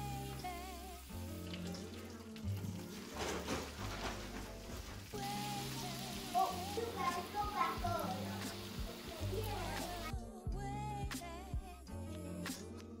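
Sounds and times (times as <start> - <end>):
food sizzling in a frying pan: 0.0 - 10.1
background music: 0.0 - 13.0.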